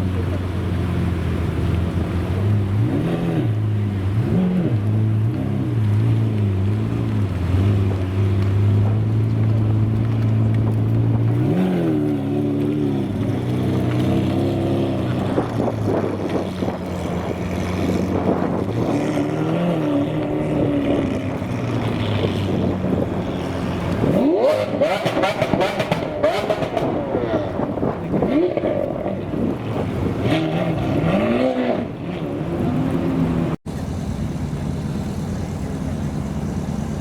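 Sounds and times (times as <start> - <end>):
supercar engine running: 0.0 - 31.0, 31.9 - 37.0.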